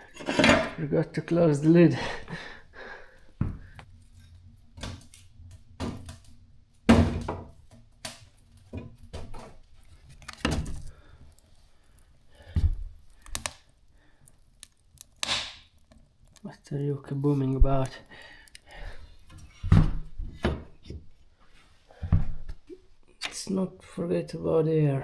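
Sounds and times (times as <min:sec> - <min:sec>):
wood stove knocks and thunks: 0:06.8 - 0:07.8.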